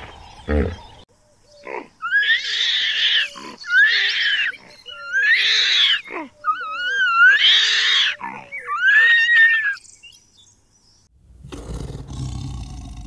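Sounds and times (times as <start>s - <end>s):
monkey screaming shrilly: 1.6s - 9.8s.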